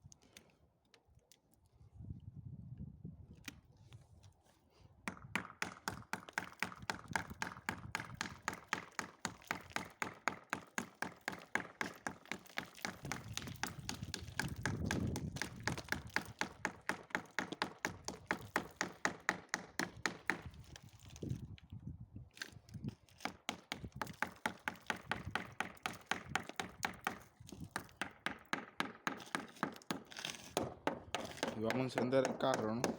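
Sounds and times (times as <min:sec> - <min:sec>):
screwdriver tapping on ice: 0:23.1 - 0:32.9.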